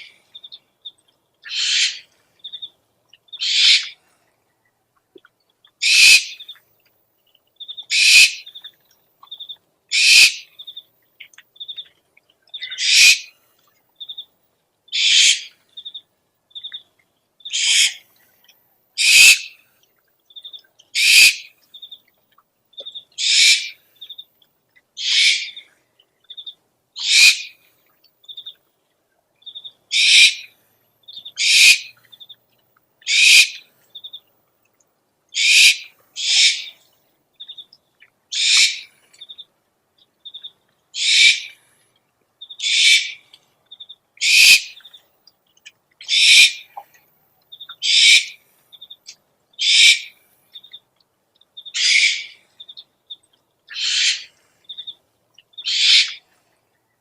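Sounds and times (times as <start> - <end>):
owl screech calls: 1.4 - 2.1, 3.4 - 4.0, 5.8 - 6.4, 7.9 - 8.5, 9.9 - 10.5, 12.6 - 13.3, 14.9 - 15.5, 17.5 - 18.0, 19.0 - 19.6, 21.0 - 21.5, 23.2 - 23.8, 25.0 - 25.6, 27.0 - 27.6, 29.9 - 30.5, 31.4 - 31.9, 33.1 - 33.6, 35.4 - 36.8, 38.3 - 38.9, 41.0 - 41.6, 42.6 - 43.2, 44.2 - 44.8, 46.0 - 46.7, 47.8 - 48.4, 49.6 - 50.2, 51.7 - 52.4, 53.7 - 54.9, 55.6 - 56.2.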